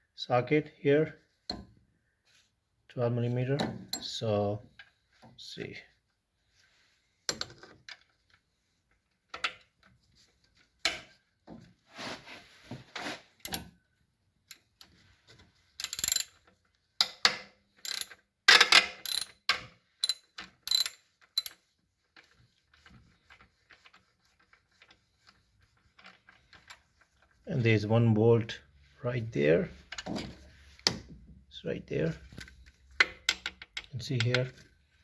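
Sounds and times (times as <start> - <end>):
ratchet wrench clicking: 15.8 - 16.3, 17.8 - 19.4, 20.0 - 21.6.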